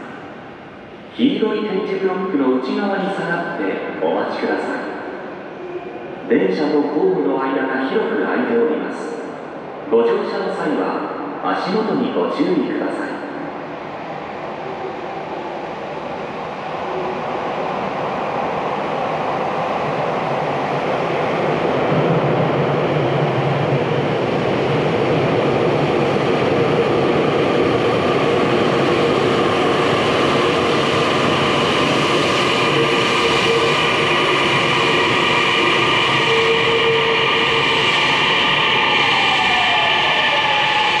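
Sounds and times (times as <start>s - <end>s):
electric train rumbling: 13.2s - 41.0s.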